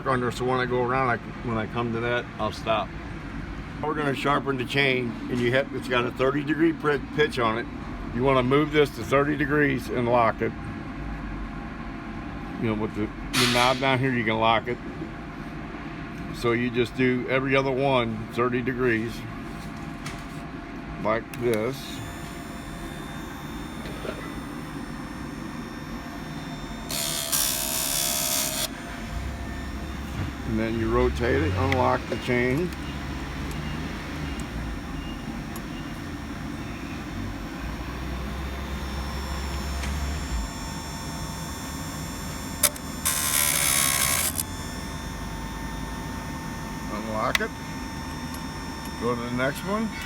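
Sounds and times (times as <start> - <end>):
motor whine: 21.3 - 50.0
chain sharpener running: 21.7 - 50.0
grinding wheel grinding metal: 21.7 - 50.0.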